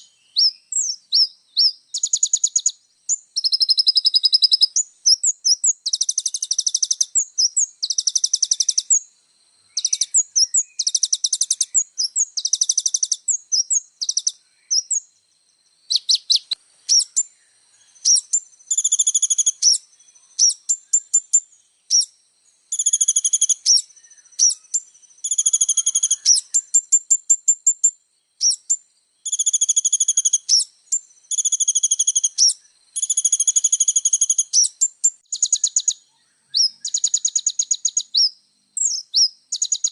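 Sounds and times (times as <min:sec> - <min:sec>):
sunbird singing trills: 0:00.0 - 0:39.9.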